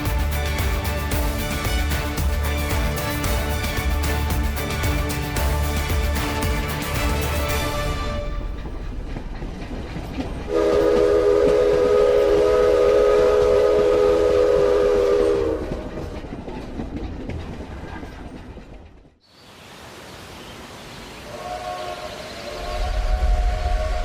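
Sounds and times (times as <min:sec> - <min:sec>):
train rumbling and clattering: 0:00.0 - 0:19.2, 0:22.4 - 0:24.0
train horn blast: 0:10.5 - 0:15.9, 0:21.3 - 0:24.0.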